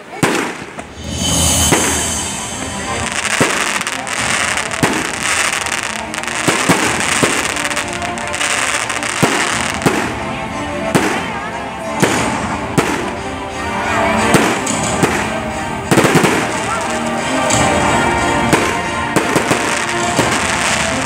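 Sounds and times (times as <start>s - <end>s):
firework crackle: 0.0s - 21.0s
firework shells bursting: 0.2s - 10.2s, 14.2s - 21.0s.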